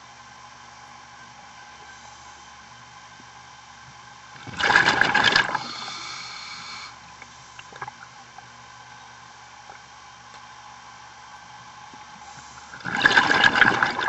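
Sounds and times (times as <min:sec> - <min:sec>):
diver's breath bubbling underwater: 0:04.4 - 0:07.0, 0:12.4 - 0:14.0.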